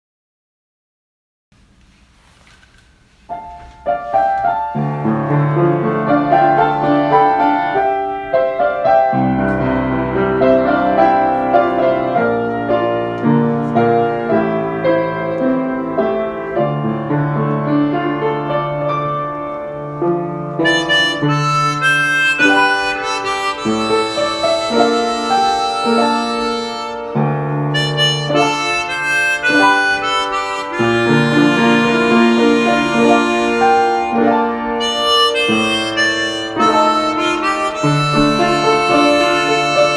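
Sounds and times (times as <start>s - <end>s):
chordal backing accompaniment: 4.2s - 39.9s
harmonica melody: 4.3s - 16.8s, 20.5s - 39.9s.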